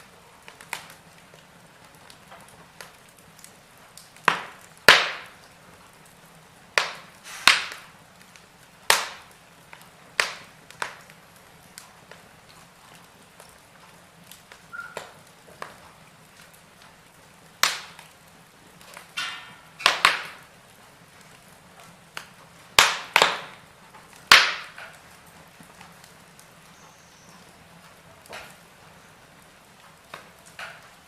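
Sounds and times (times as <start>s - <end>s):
faint steady hiss: 0.0s - 31.0s
wood fire crackling and popping: 0.0s - 31.0s.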